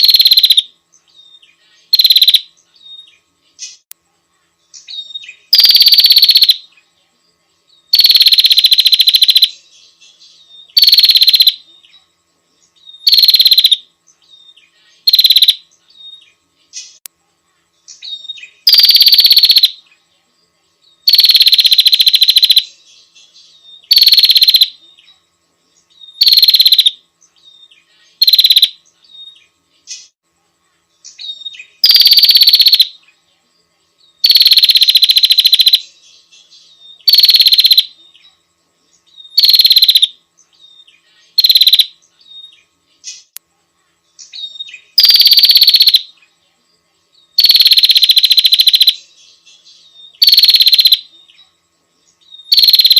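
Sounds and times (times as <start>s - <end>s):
bird buzzing trills: 0.0s - 52.9s.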